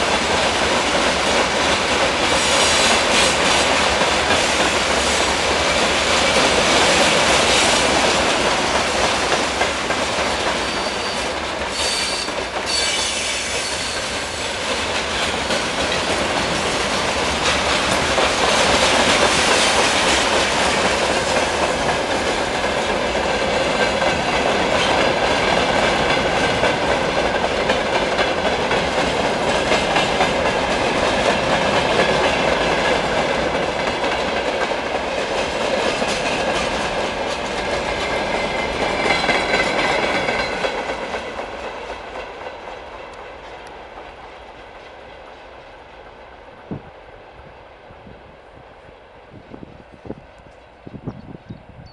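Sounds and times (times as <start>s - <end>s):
train wheels clattering on rails: 0.0s - 46.9s
high wheel squeal: 10.6s - 14.1s.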